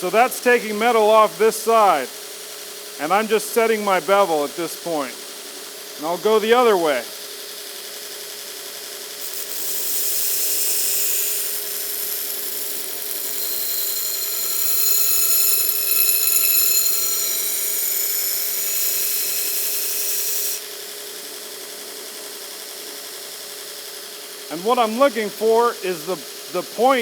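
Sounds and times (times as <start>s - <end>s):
steel grinding on belt: 9.0s - 20.9s
grinder motor humming: 9.2s - 21.0s.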